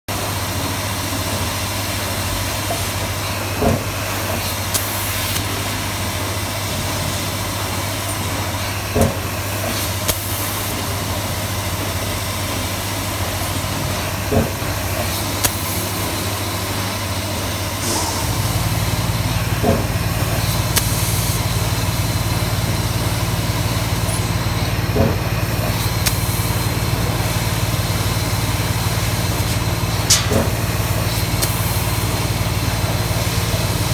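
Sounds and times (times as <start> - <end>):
laser cutter hum and hiss: 0.1 - 33.9
deep loud hum: 13.8 - 33.9
short sharp click: 30.0 - 30.5.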